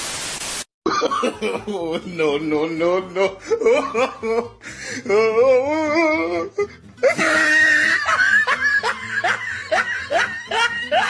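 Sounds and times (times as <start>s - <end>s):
person's wavering sung-like voice: 1.6s - 8.1s
laughter-like rising cries: 5.5s - 11.0s.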